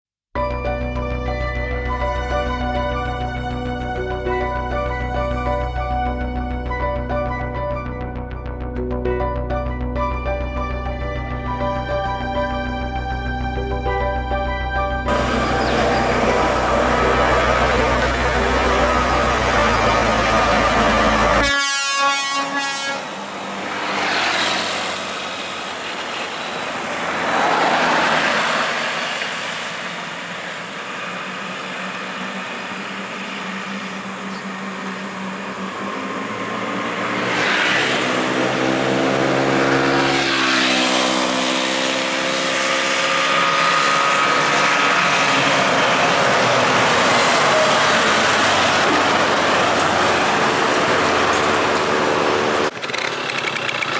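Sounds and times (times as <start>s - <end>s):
heavy trucks passing: 0.4s - 9.0s, 9.6s - 53.9s
truck engine pulling away: 0.4s - 21.5s, 23.0s - 53.9s
horn blast: 14.7s - 25.5s.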